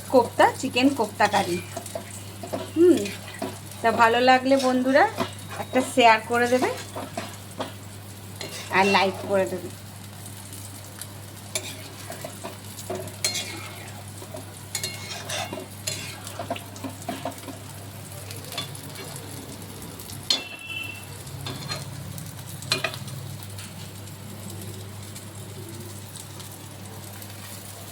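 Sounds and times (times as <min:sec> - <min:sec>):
food sizzling: 0:00.0 - 0:27.9
metal spatula scraping pan: 0:01.4 - 0:07.7, 0:08.4 - 0:09.3, 0:11.6 - 0:13.9, 0:14.7 - 0:17.4.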